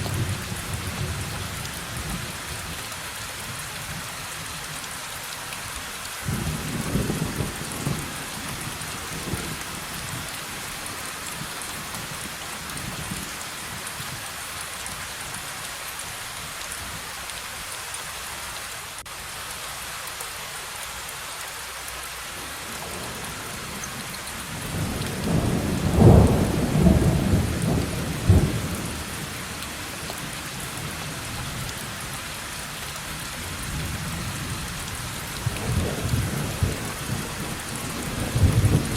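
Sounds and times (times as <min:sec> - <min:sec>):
heavy rain: 0:00.0 - 0:38.9
thunder rumbling: 0:24.4 - 0:31.7, 0:35.4 - 0:38.9.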